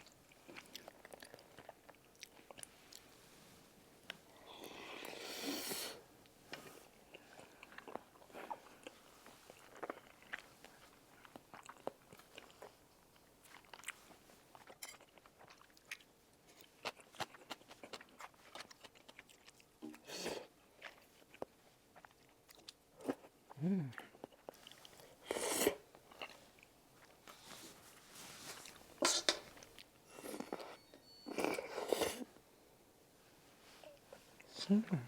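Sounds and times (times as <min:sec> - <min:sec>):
wet chewing mouth sounds: 0:14.6 - 0:23.3.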